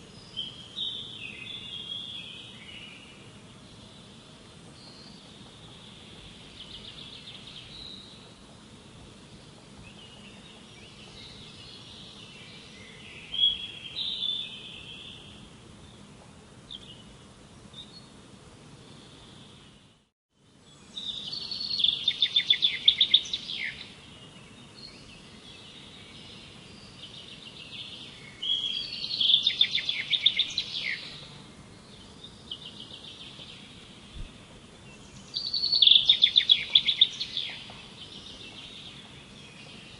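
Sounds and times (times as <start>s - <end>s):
steady background hiss: 0.0s - 39.9s
songbird trilling: 21.0s - 23.9s, 26.9s - 31.3s, 35.1s - 39.9s.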